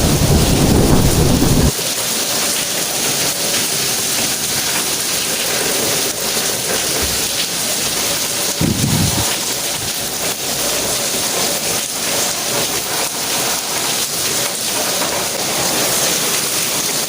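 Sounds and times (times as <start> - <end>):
rain hissing: 0.0 - 1.8, 4.2 - 17.0
thunder rumbling: 0.0 - 1.8, 8.6 - 10.4.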